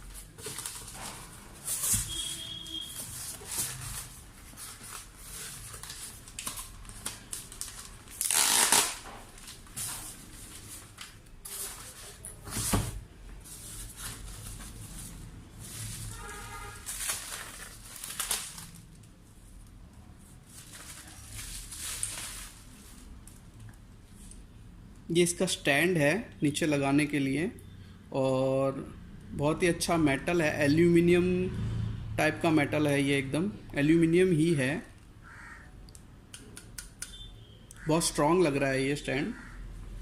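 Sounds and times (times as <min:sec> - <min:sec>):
packaging rustling: 0:00.0 - 0:12.7, 0:13.4 - 0:19.1, 0:20.4 - 0:23.1.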